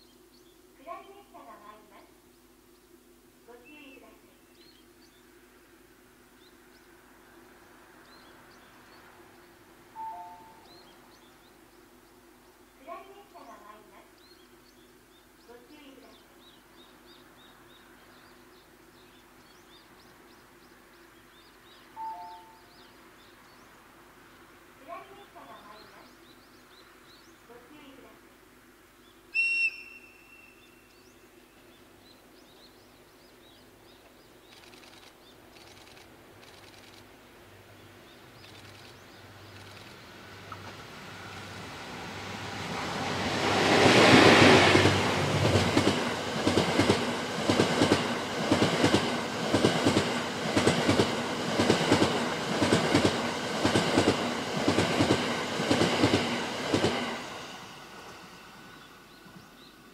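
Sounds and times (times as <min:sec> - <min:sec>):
train passing at speed: 0:02.9 - 0:32.6, 0:39.2 - 0:59.9
wheels clickety-clack over rail joints: 0:43.4 - 0:57.2.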